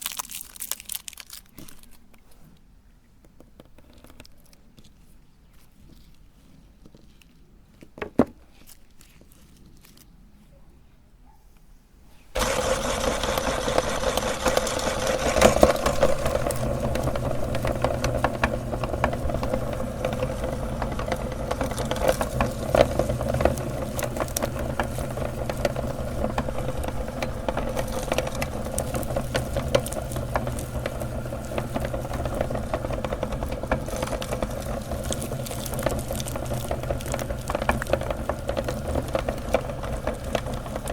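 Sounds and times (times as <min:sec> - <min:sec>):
candy crunching in grinder: 0:00.0 - 0:02.5, 0:03.8 - 0:10.4, 0:12.4 - 0:40.9
meat grinder motor running: 0:12.4 - 0:40.9.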